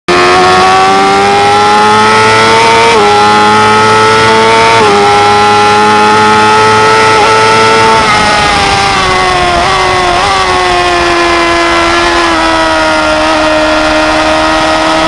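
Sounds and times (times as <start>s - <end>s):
motorcycle engine revving high: 0.1s - 15.0s
wind rushing: 6.6s - 14.7s.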